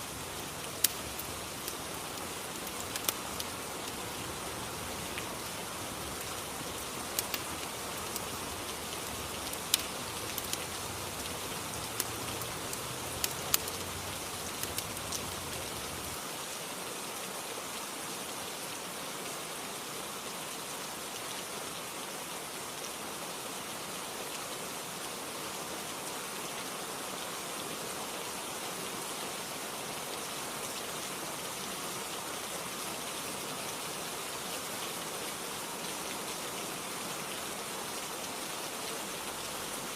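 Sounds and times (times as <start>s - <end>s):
fire crackles: 0.0s - 16.2s
steady rain: 0.0s - 39.9s.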